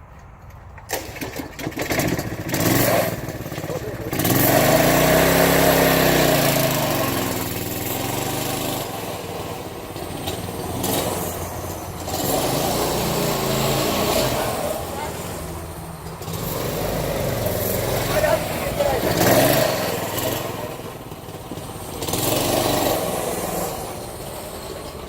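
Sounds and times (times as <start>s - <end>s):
small engine revving: 0.9s - 25.0s.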